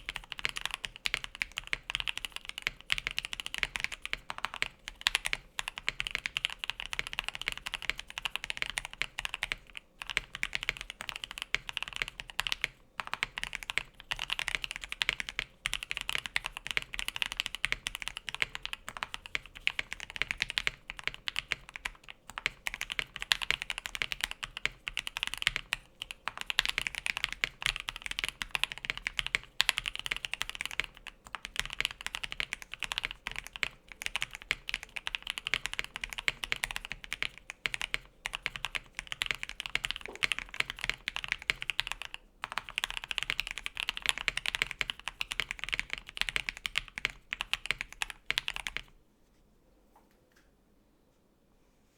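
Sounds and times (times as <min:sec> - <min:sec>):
mechanical keyboard typing: 0:00.0 - 0:49.0.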